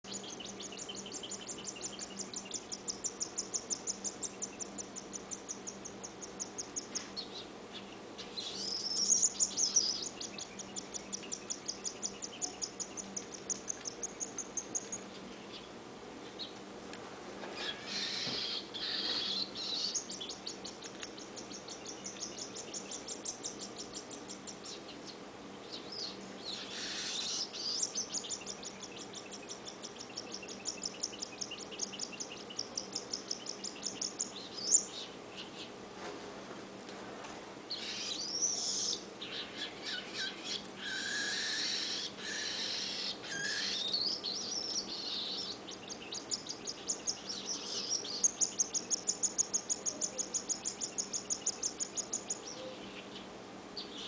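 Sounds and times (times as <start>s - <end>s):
baby bird food-begging chirps: 0.1s - 7.5s, 8.4s - 15.0s, 17.6s - 24.9s, 25.7s - 35.5s, 37.7s - 52.6s
bird harsh squawks: 17.6s - 20.0s, 26.5s - 27.8s, 37.8s - 44.1s.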